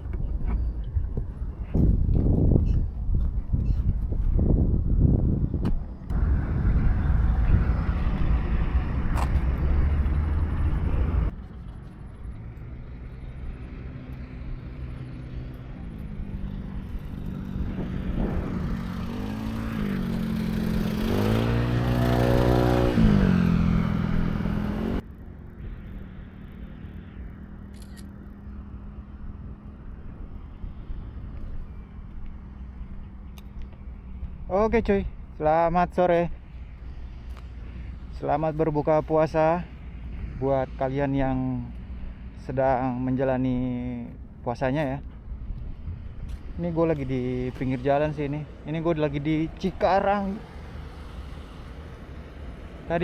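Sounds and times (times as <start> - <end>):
wind noise: 0.0 - 12.1, 16.0 - 25.0
motorcycle engine revving: 6.1 - 11.4, 13.0 - 29.7.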